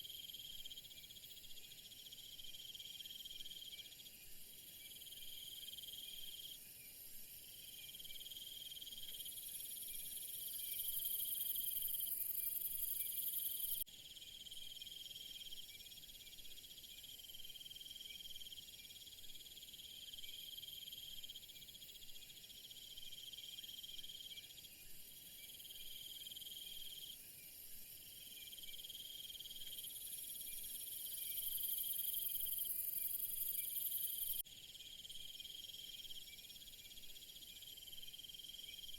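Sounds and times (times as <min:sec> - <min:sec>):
crickets trilling: 0:28.1 - 0:38.9
high-pitched insect trilling: 0:28.5 - 0:34.4.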